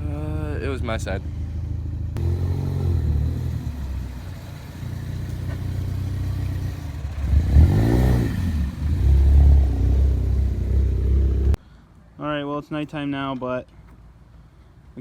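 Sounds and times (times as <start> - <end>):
car engine revving: 2.2 - 11.6.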